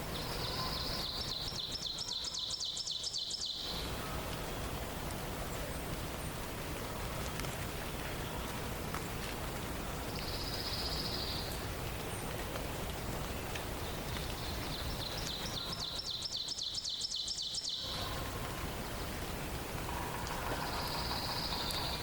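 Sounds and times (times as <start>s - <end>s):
forest ambience hiss: 0.0s - 22.0s
songbird trilling: 0.1s - 4.2s, 13.8s - 18.4s, 20.1s - 22.0s.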